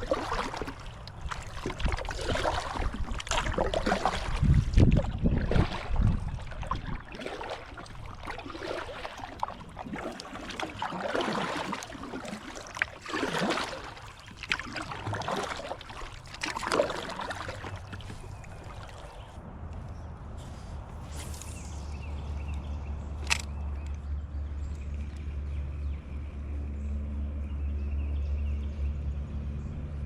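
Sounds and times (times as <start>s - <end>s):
water dripping: 0.0s - 19.2s
kayak paddle splashing in water: 0.0s - 19.3s.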